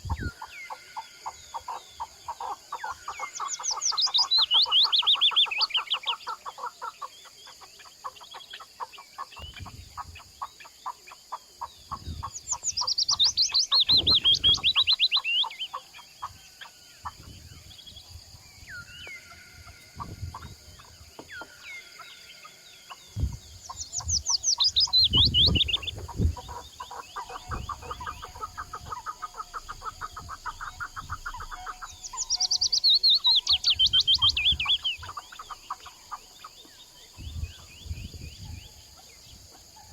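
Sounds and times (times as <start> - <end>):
birds clucking: 0.0 - 39.9
fast high bird calls: 18.3 - 36.4
low thumps: 23.1 - 35.1.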